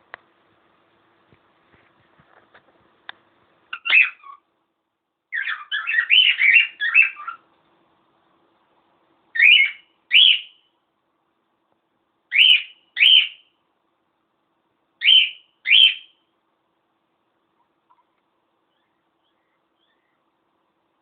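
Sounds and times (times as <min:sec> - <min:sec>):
cockatiel whistled calls: 0:05.4 - 0:07.4, 0:09.4 - 0:10.6, 0:12.3 - 0:13.4, 0:15.0 - 0:16.2.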